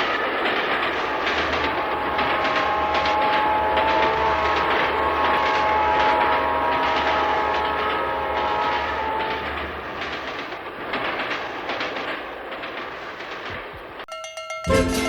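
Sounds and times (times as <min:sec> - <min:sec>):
train horn: 0:00.0 - 0:11.3
railroad cars clattering: 0:00.0 - 0:15.0
music: 0:14.1 - 0:15.0.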